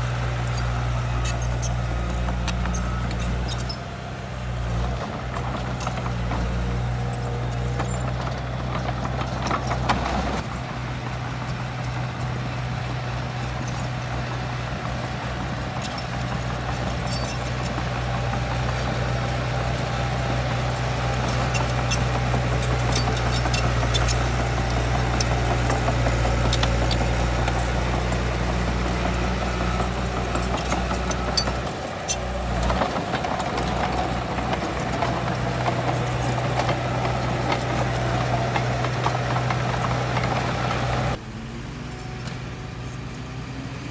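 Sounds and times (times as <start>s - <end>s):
heavy diesel machinery running: 0.0s - 43.9s
metallic clanks and rattles: 20.2s - 41.1s.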